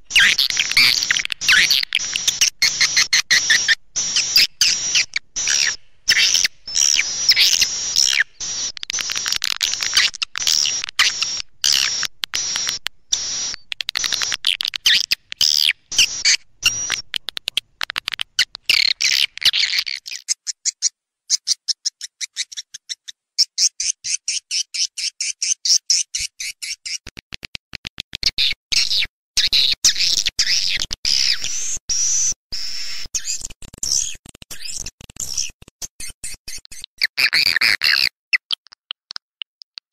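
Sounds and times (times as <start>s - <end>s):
swiftlets twittering: 0.1s - 17.5s
fast dry clicks: 6.8s - 19.6s, 33.1s - 36.9s.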